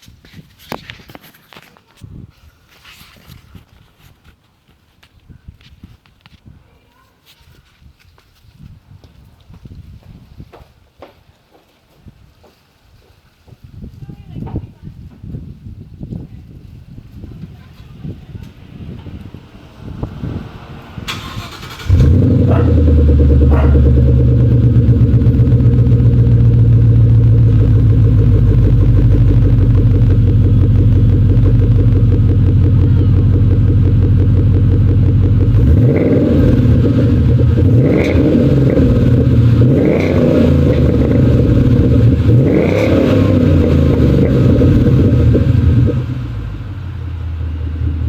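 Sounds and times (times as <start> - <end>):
car engine idling and revving: 18.8 - 48.0.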